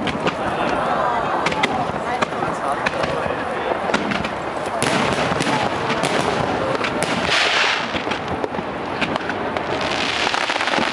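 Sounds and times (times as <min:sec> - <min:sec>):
fireworks crackling: 0:00.0 - 0:10.9
fireworks popping and banging: 0:00.0 - 0:10.9.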